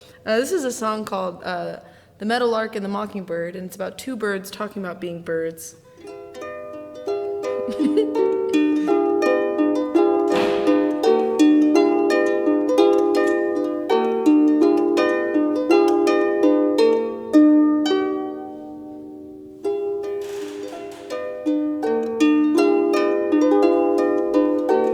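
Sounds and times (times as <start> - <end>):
harp plucked: 5.9 - 24.9.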